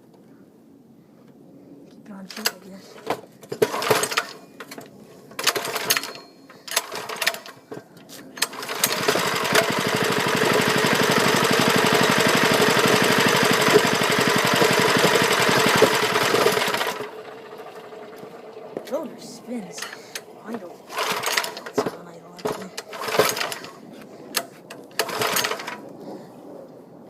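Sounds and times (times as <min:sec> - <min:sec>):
engine starting clicks and knocks: 0:02.3 - 0:18.9, 0:20.9 - 0:23.8, 0:24.4 - 0:25.8
small engine running: 0:03.5 - 0:04.4, 0:05.4 - 0:07.6, 0:08.4 - 0:23.8, 0:24.4 - 0:25.8.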